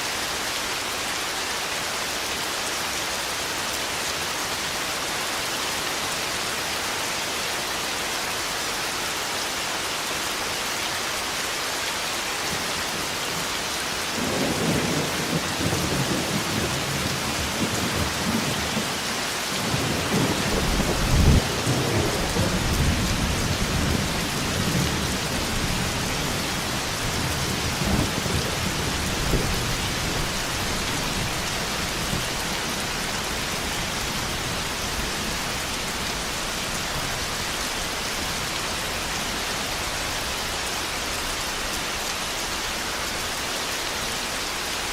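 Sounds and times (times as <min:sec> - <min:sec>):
heavy rain: 0:00.0 - 0:44.9
rolling thunder: 0:19.7 - 0:26.3.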